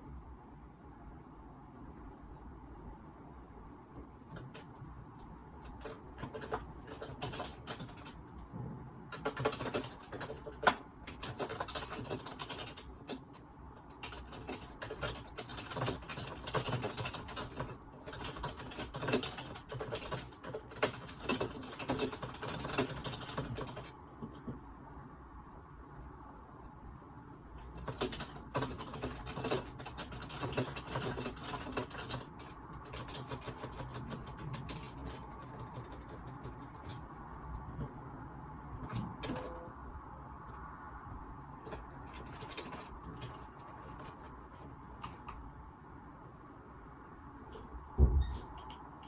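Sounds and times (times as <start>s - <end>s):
typing on computer keyboard: 4.2s - 8.4s, 9.1s - 24.6s, 27.6s - 37.8s, 38.8s - 39.8s, 41.6s - 45.4s, 48.2s - 49.0s.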